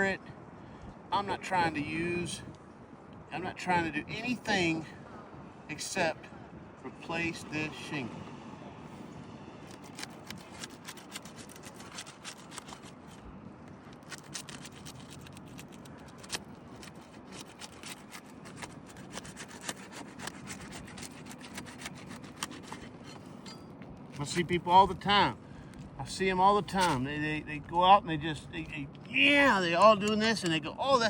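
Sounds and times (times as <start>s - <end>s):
shingle scraping and rubbing: 9.6s - 24.4s, 26.6s - 27.1s
small sharp clicks and crackles: 9.7s - 22.9s.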